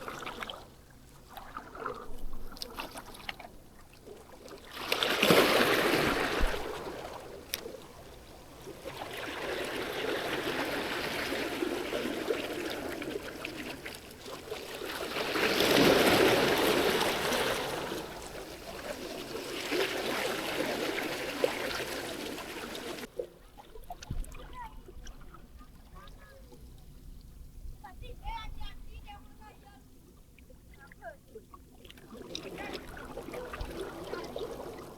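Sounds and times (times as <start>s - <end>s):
sea waves washing ashore: 4.6s - 23.2s, 32.0s - 34.9s.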